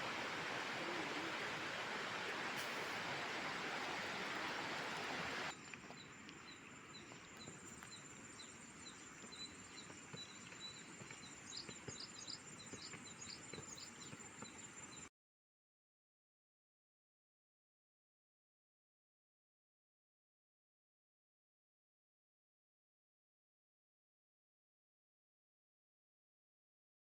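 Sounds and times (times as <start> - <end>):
bird chirping: 5.7 - 15.1.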